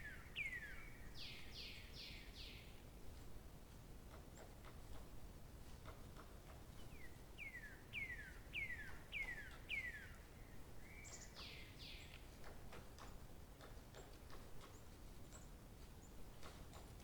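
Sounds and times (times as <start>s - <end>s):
songbird singing: 0.0s - 2.8s, 6.8s - 12.2s.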